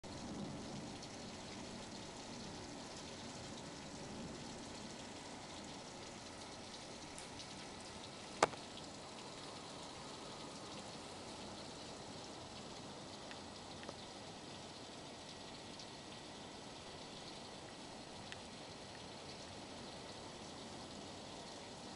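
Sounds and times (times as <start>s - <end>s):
heavy rain falling: 0.0s - 21.9s
rain drop taps: 6.4s - 9.7s, 12.5s - 14.2s, 17.1s - 19.4s.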